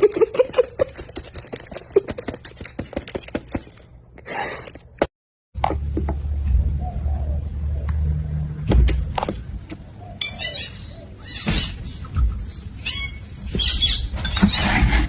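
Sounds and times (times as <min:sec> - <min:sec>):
parrot squawks and chirps: 0:10.2 - 0:14.6.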